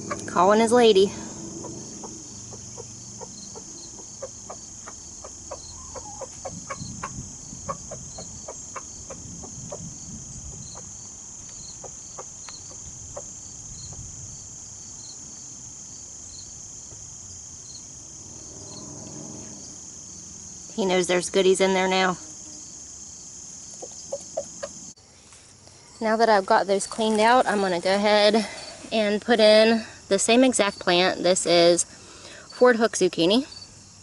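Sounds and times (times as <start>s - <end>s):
crickets trilling: 0.0s - 34.0s
rooster clucking: 1.6s - 9.8s, 23.8s - 24.8s.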